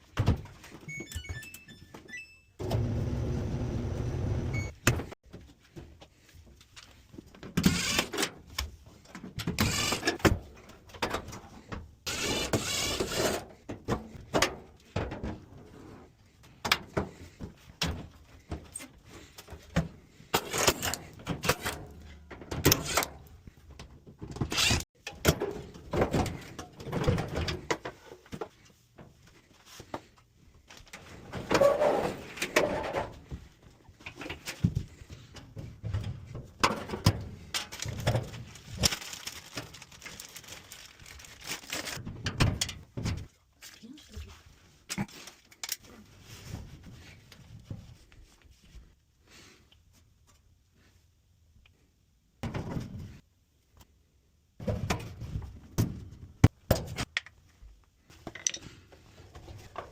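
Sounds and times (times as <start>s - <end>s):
clothes dryer humming: 2.6s - 5.1s.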